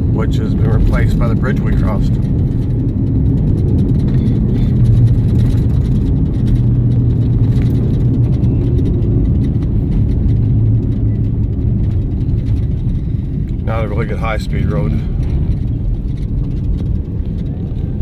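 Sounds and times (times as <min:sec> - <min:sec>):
car engine and tyres rumbling: 0:00.0 - 0:18.0
ticks and rattles: 0:00.0 - 0:18.0.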